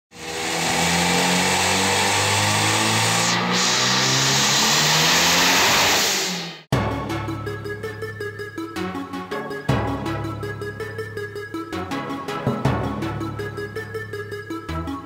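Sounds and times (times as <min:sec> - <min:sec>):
turbocharged engine running hard: 0:00.1 - 0:06.7.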